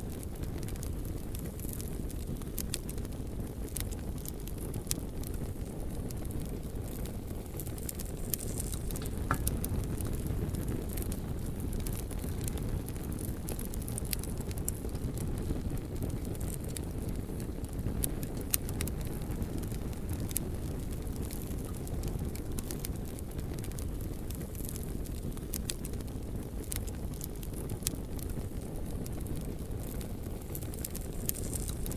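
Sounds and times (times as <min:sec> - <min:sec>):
wood fire crackling and popping: 0:00.0 - 0:31.9.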